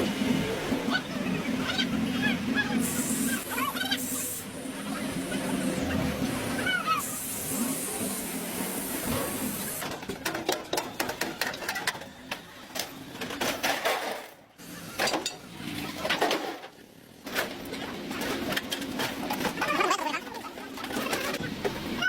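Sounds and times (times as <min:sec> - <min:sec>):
hand tools clicking and scraping metal: 0:09.1 - 0:21.8.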